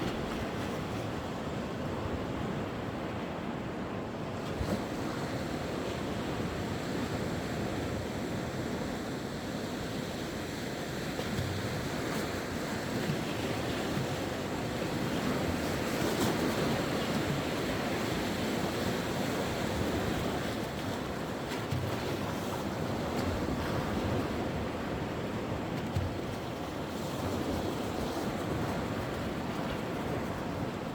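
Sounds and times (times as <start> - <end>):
sea waves breaking on shore: 0.0 - 30.9.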